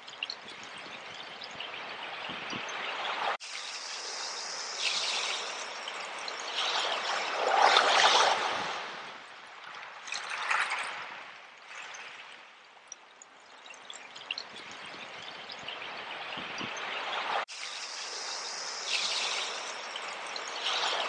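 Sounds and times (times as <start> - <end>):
ocean waves on shore: 1.8 - 12.4.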